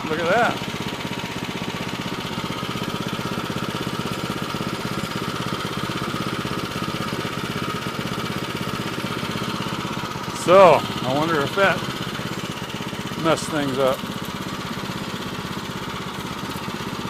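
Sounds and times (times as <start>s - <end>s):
small gas engine running: 0.0s - 17.0s
steady whine: 10.3s - 12.3s.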